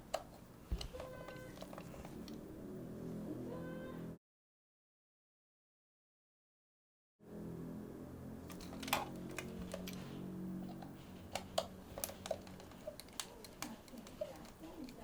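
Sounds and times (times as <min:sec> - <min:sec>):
small parts clicking and tapping: 0:00.0 - 0:02.4, 0:08.5 - 0:15.0
low hum: 0:07.2 - 0:14.0.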